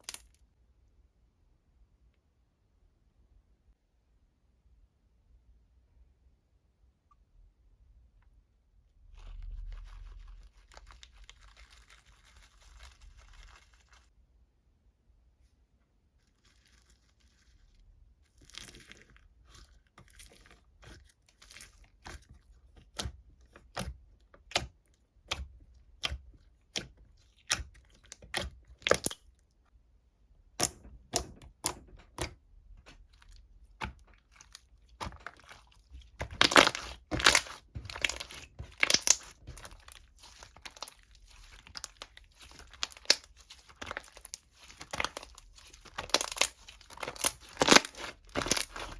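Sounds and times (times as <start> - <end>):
crinkly material crackling: 9.0 - 14.1, 16.2 - 22.4, 32.8 - 48.9.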